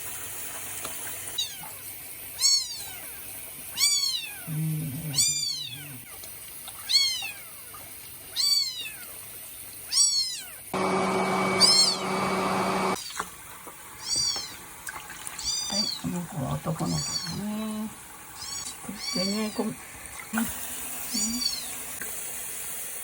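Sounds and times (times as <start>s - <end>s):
kitten meowing: 2.4s - 3.1s, 3.7s - 4.5s, 5.1s - 6.1s, 6.8s - 7.5s, 8.3s - 9.1s, 9.9s - 10.6s, 11.6s - 12.0s, 14.0s - 14.6s, 15.4s - 16.0s, 16.8s - 17.5s, 18.4s - 19.6s, 21.1s - 21.7s
steady hissing hum: 12.8s - 23.0s.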